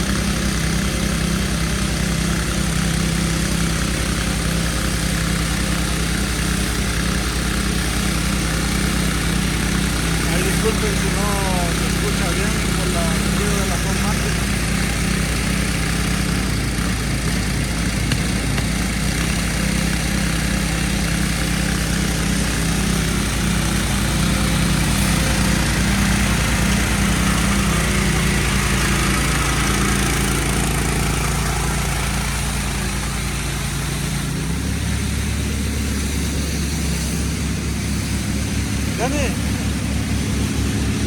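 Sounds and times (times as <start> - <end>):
small gas engine running: 0.0 - 41.0
water spray hissing: 5.7 - 41.0.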